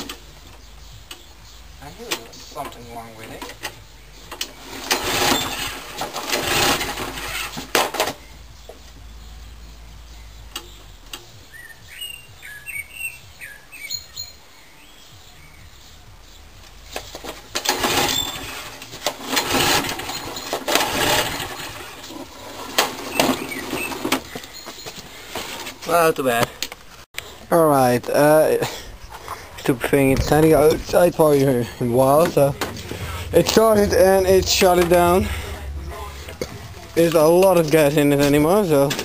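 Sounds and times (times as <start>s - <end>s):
bird chirping: 0.0s - 5.6s, 8.2s - 16.9s, 23.0s - 25.2s
lawnmower engine cranking: 2.1s - 8.2s, 17.2s - 24.6s.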